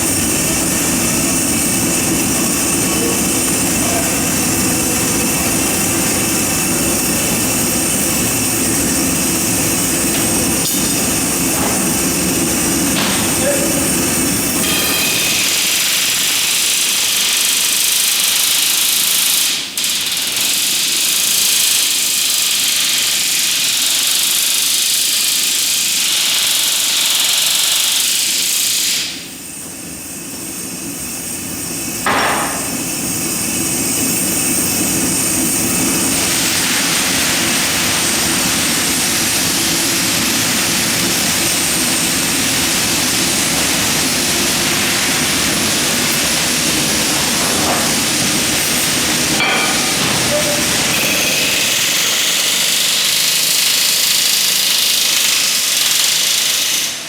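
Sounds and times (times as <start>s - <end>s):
sharp knock: 32.1s - 32.7s.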